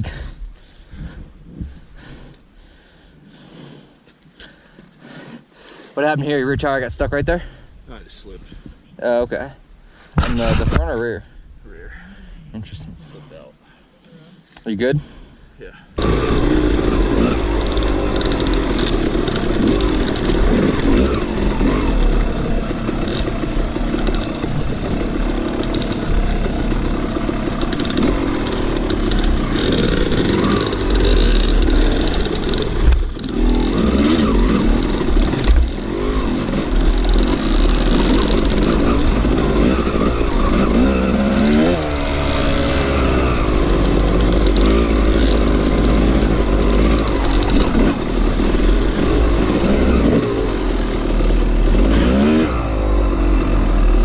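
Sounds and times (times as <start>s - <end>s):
dirt bike engine revving: 15.0s - 54.0s.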